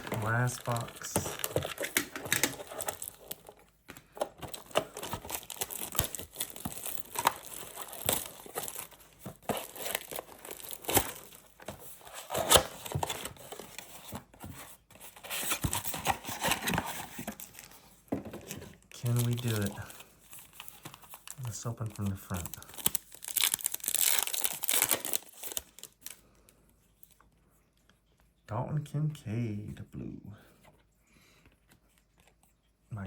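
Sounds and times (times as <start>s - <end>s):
plastic wrapping crinkling and tearing: 0.0s - 3.6s, 4.4s - 11.6s, 19.0s - 26.2s.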